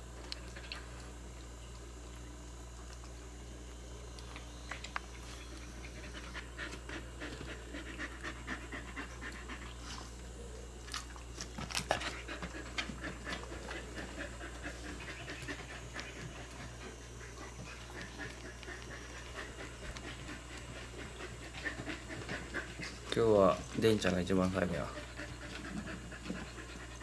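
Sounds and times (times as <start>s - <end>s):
cat chewing and licking wet food: 9.0s - 27.0s.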